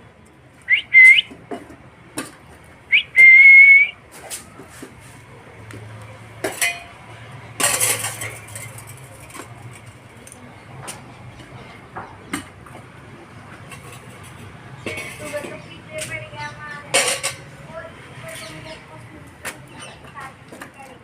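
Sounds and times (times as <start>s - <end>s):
parrot whistling: 0.7s - 1.3s, 2.9s - 3.9s.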